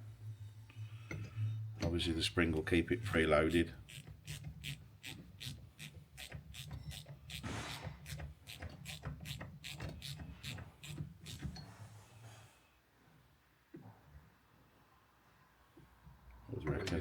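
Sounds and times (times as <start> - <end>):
brief scraping rub: 7.3 - 8.1.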